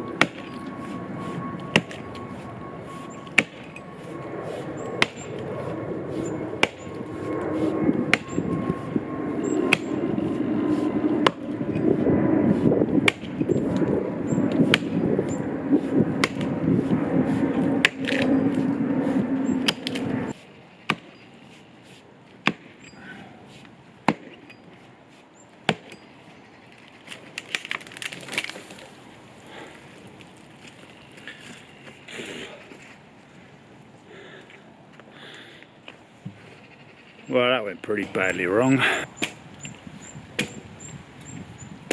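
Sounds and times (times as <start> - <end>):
axe chopping into tree trunk: 0.2 - 0.5, 1.7 - 2.0, 3.4 - 3.6, 5.0 - 5.2, 6.6 - 6.8, 13.0 - 13.4, 14.6 - 15.0, 20.9 - 21.1, 22.4 - 22.8, 24.0 - 24.4, 25.7 - 26.0, 40.4 - 40.6
wood cracking and rustling: 26.7 - 31.6.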